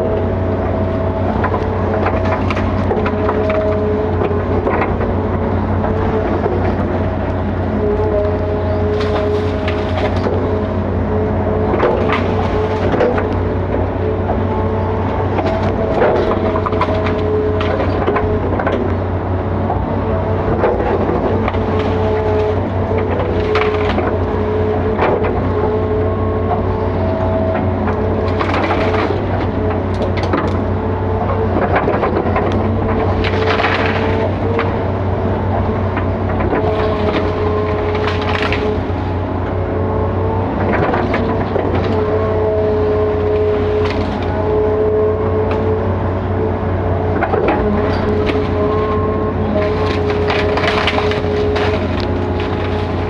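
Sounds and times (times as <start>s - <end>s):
excavator engine humming: 0.0s - 53.0s
cracks and knocks: 1.2s - 8.0s, 11.6s - 19.0s, 20.4s - 25.8s, 26.5s - 34.9s, 35.5s - 39.0s, 47.1s - 48.9s, 49.6s - 53.0s.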